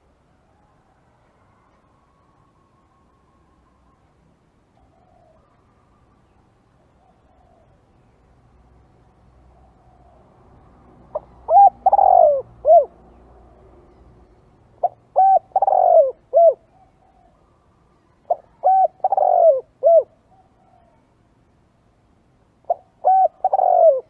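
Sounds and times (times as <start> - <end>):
dove cooing: 11.1 - 13.0, 14.8 - 17.4, 18.2 - 21.1, 22.6 - 24.0.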